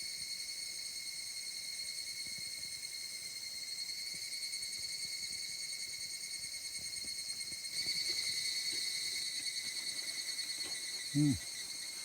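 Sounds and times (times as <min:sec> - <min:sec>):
crickets trilling: 0:07.7 - 0:12.0.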